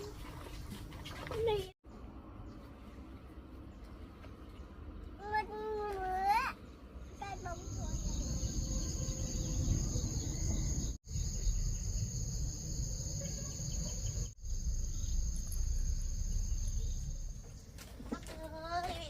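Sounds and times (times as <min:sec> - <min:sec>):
crickets trilling: 0:07.3 - 0:17.6
low rumble: 0:14.4 - 0:17.8.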